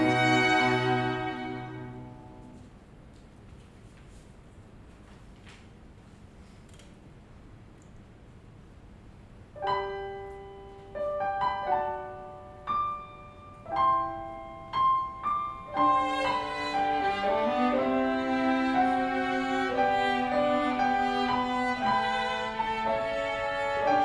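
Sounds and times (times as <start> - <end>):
piano notes ringing: 0.0 - 2.6, 9.6 - 24.0.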